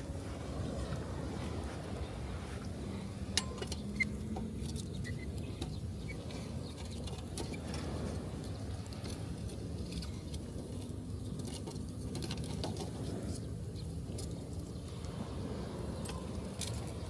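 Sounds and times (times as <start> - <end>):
waves washing: 0.0 - 4.7, 14.5 - 17.0.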